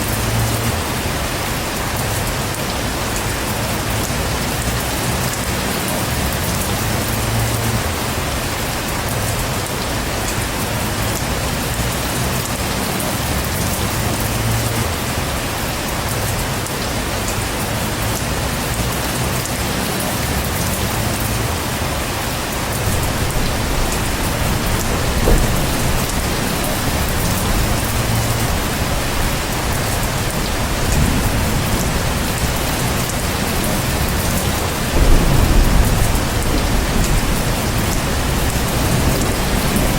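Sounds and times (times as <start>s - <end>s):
heavy rain falling: 0.0s - 39.9s
low rumbles of thunder: 22.8s - 39.9s.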